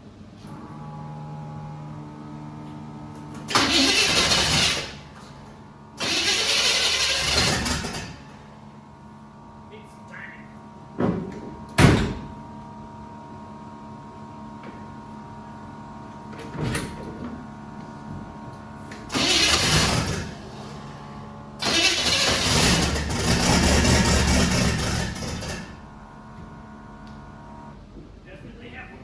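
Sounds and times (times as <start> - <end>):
starter cranking engine: 3.4 - 5.1, 6.0 - 8.3, 19.0 - 20.9, 21.6 - 25.9.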